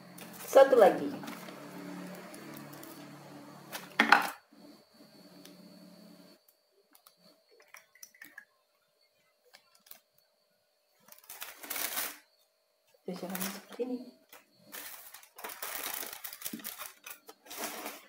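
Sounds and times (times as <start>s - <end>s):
low steady hum: 0.0s - 11.5s.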